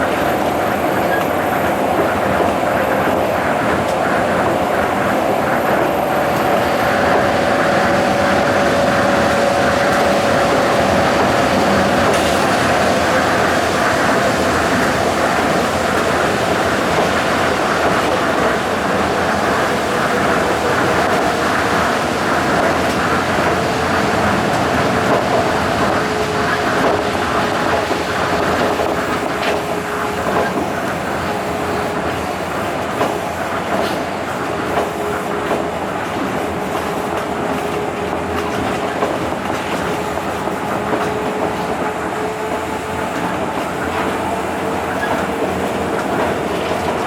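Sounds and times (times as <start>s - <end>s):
monorail train rolling rumble: 0.0s - 47.0s.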